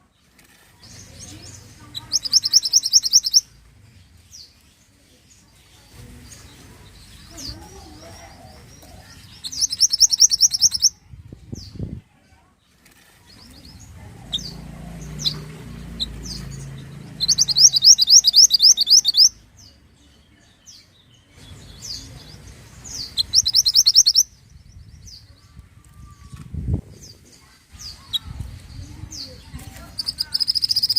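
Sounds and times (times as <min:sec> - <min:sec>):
songbird trilling: 0:00.9 - 0:03.5, 0:08.1 - 0:11.0, 0:13.4 - 0:19.8, 0:21.5 - 0:25.3, 0:27.8 - 0:30.9.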